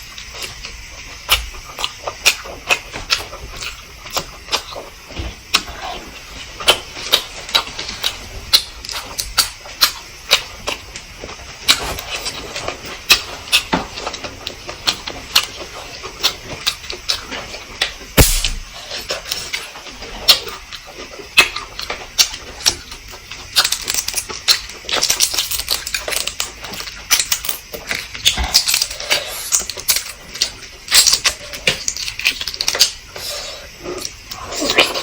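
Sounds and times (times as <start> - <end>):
chewing and mouth smacks: 0.2 - 35.0
heavy knock: 18.2 - 18.7.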